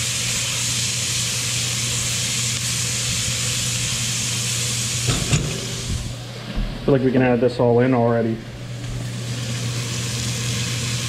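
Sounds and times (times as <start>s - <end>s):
vegetables sizzling: 0.0s - 6.2s, 8.7s - 11.0s.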